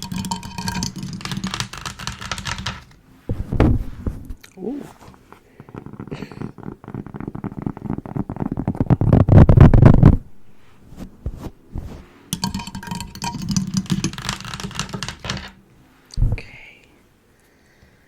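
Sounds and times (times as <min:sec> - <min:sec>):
rapid tapping on microphone: 0:00.0 - 0:03.9, 0:05.6 - 0:10.2, 0:12.4 - 0:15.6
crackling scratch: 0:00.0 - 0:15.5
rubbing on microphone: 0:03.2 - 0:12.2.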